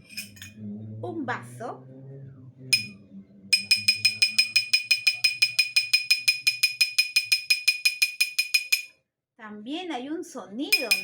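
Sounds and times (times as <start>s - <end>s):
spoon clinking a glass: 0.0s - 0.6s, 2.8s - 3.0s, 3.6s - 8.9s, 10.7s - 11.0s.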